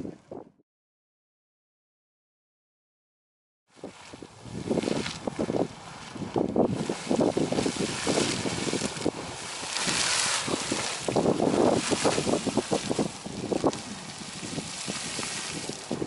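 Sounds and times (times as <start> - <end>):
geyser water splashing and surging: 3.8 - 16.0
rushing hiss: 6.9 - 13.1.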